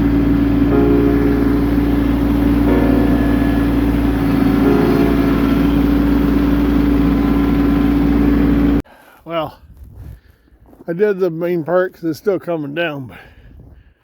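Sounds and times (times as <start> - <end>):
tractor diesel engine droning: 0.0 - 8.8.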